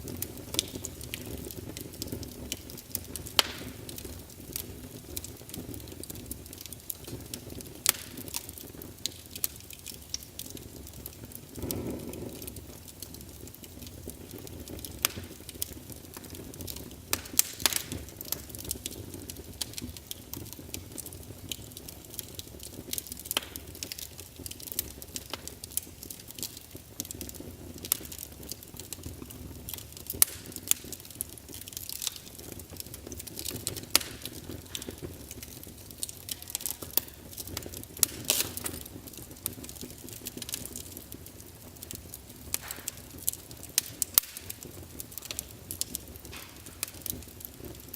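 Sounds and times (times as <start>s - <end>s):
low rumble of flame: 0.0s - 47.9s
wood fire crackling and popping: 0.0s - 47.9s.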